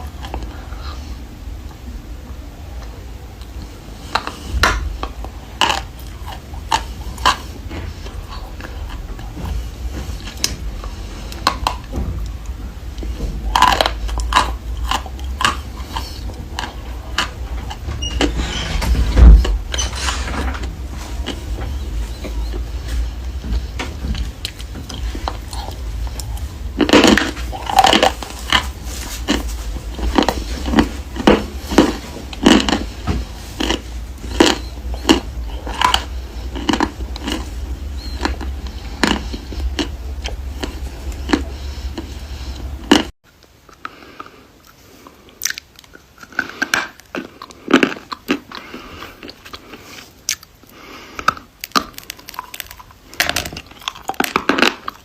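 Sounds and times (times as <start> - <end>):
background hum: 0.0 - 55.0
crunchy chewing: 2.8 - 55.0.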